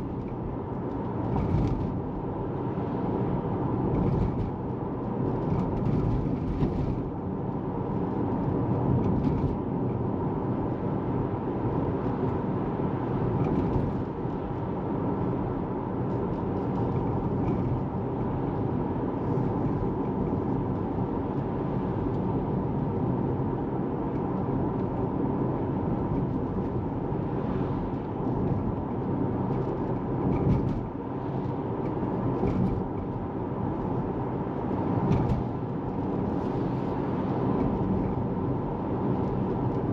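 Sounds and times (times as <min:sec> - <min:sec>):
tyre and road noise: 0:00.0 - 0:39.9
faint knocks from road bumps: 0:35.0 - 0:35.5.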